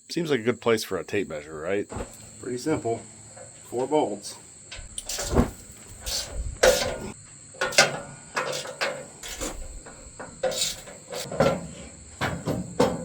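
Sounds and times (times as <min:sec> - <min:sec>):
crickets chirping: 0:00.0 - 0:13.0
wrench clanking on steel: 0:04.7 - 0:11.6.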